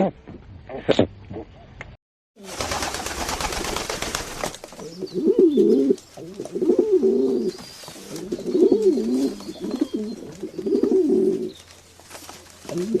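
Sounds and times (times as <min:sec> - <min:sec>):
bird cooing: 0:04.8 - 0:11.6, 0:12.6 - 0:13.0.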